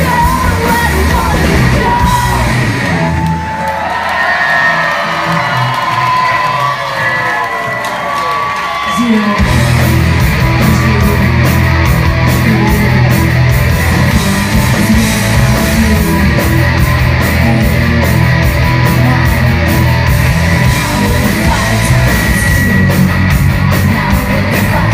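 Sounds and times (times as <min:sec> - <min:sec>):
live rock band playing: 0:00.0 - 0:03.8, 0:09.0 - 0:24.9.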